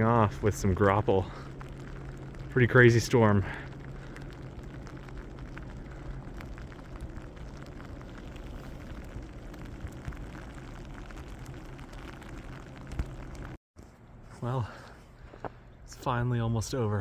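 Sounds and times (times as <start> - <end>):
ice pellets ticking: 0.0 - 13.6
low outdoor rumble: 0.0 - 17.0.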